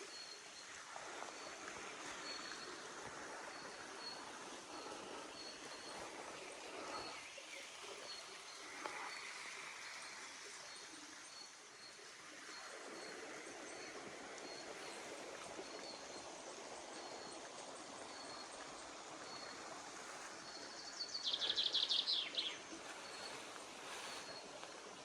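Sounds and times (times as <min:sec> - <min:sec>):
running water: 0:00.0 - 0:25.0.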